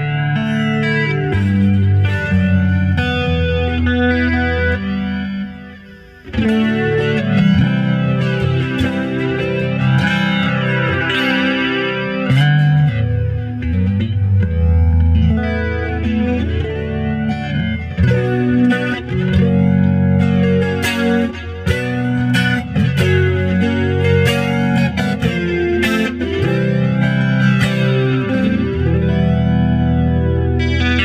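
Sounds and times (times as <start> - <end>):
clean electric guitar: 0.0 - 31.0.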